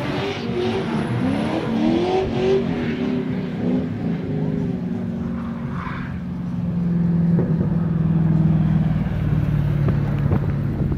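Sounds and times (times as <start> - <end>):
drift car engine passing: 0.0 - 9.4.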